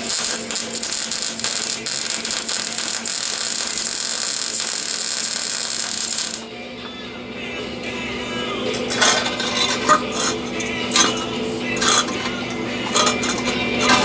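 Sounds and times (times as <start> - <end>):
welding arc crackling: 0.0 - 6.5.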